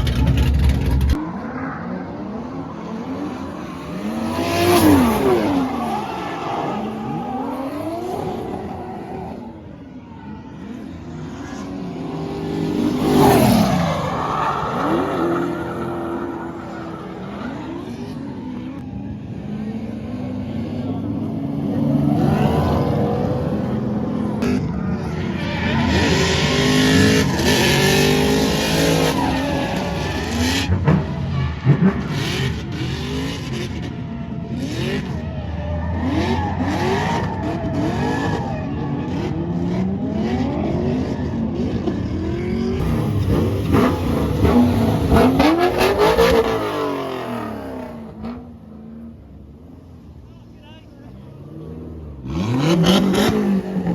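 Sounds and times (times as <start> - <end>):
car engines revving: 0.0 - 53.9
tyre screech: 25.0 - 33.0.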